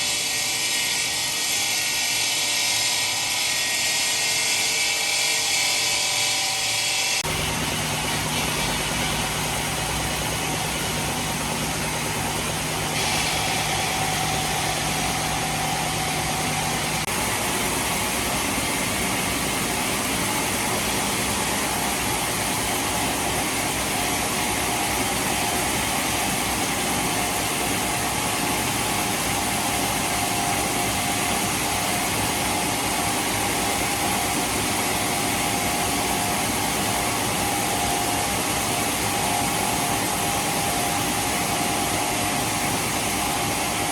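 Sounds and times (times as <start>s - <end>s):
heavy machinery running: 6.7s - 43.9s.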